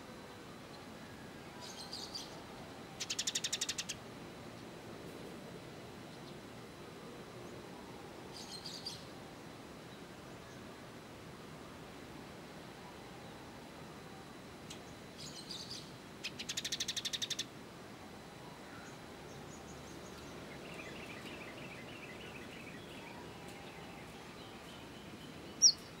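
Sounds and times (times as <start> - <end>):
faint twittering: 12.8 - 26.0
rapid bird chattering: 16.2 - 17.4
high bird chirps: 25.6 - 25.9.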